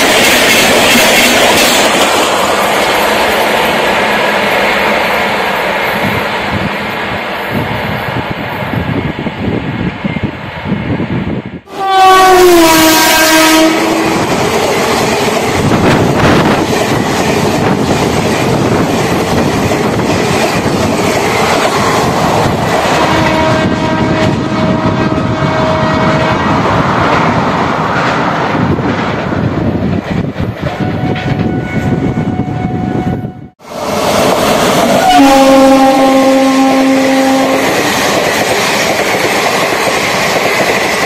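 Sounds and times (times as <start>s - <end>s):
train coaches clattering past: 0.0s - 9.2s, 11.6s - 32.8s, 33.6s - 41.0s
train horn: 11.7s - 14.4s, 22.8s - 26.7s, 30.7s - 33.6s, 34.8s - 37.9s.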